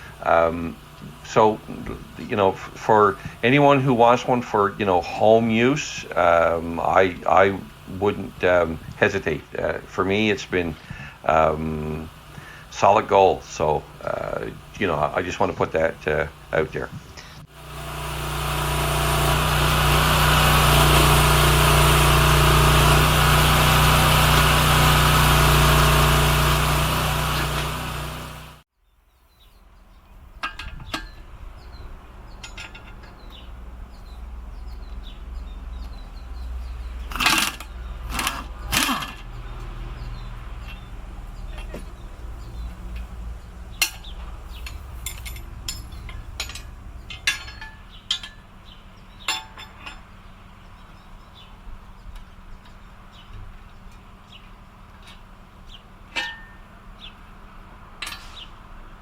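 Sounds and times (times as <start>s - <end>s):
small gasoline engine running: 0.0s - 28.6s, 33.0s - 49.1s
low hum: 29.7s - 49.2s.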